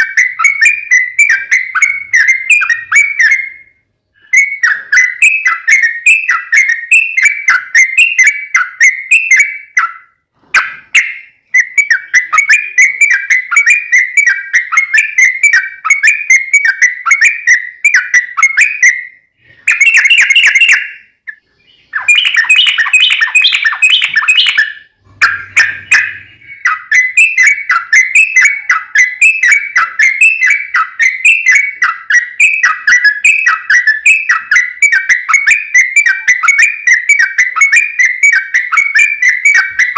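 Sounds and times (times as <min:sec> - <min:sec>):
bird singing chattering song: 0:00.0 - 0:39.9.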